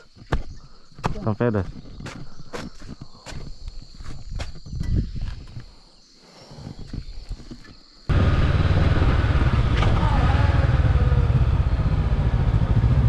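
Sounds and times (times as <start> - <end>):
motorcycle engine running: 8.1 - 13.0
road and wind rush: 8.1 - 13.0.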